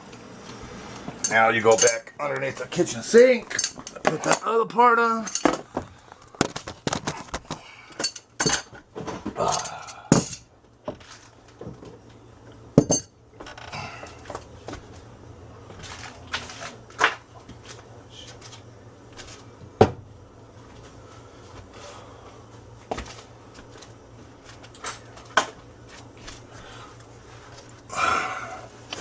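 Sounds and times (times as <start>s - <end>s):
metal tools clinking and knocking: 1.2s - 2.1s, 3.4s - 4.5s, 5.1s - 5.7s, 7.9s - 8.8s, 9.4s - 10.5s, 12.8s - 13.7s.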